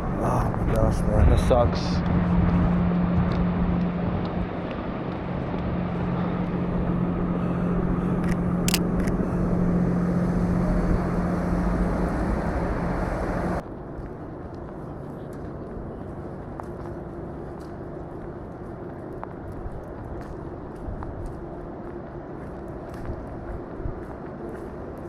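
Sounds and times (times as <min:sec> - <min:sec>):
city street traffic: 0:00.0 - 0:25.0
vehicle engine hum: 0:00.0 - 0:25.0
sharp clicks: 0:08.2 - 0:09.2.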